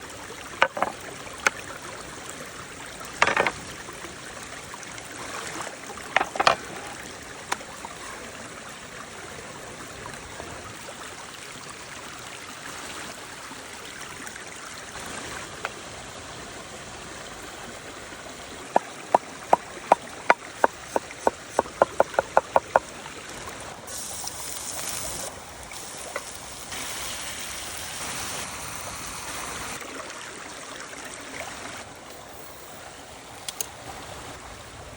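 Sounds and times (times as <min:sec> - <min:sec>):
knocks: 0:00.6 - 0:01.0, 0:03.2 - 0:03.6, 0:18.8 - 0:22.8
rushing hiss: 0:23.8 - 0:29.8.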